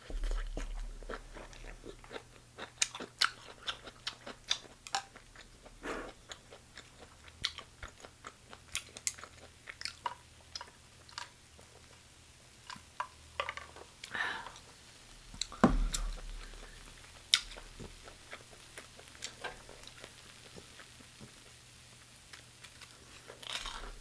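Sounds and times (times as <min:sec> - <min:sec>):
person chewing crunchy food: 0:00.0 - 0:12.0, 0:22.3 - 0:24.0.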